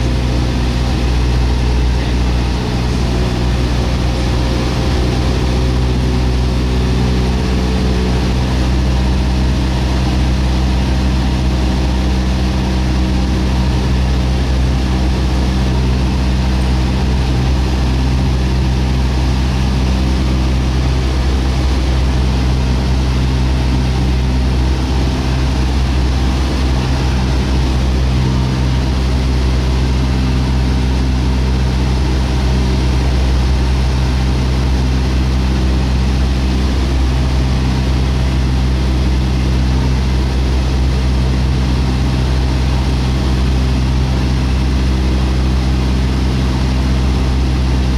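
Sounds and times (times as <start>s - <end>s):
loud steady engine hum: 0.0s - 47.9s.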